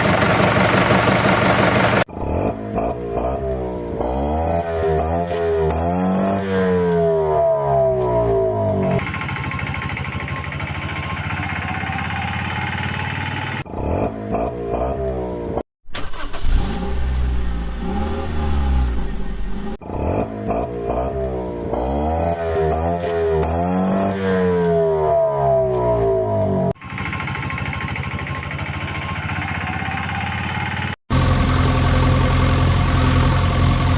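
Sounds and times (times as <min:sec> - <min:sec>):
vehicle engine revving: 0:00.0 - 0:09.4, 0:11.2 - 0:27.7.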